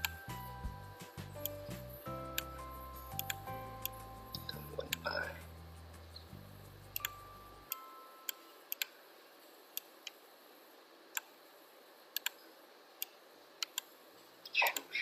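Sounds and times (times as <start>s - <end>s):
low hum: 0.0s - 8.8s
computer mouse clicking: 8.3s - 9.0s, 11.1s - 11.4s, 12.1s - 12.4s, 13.0s - 14.0s.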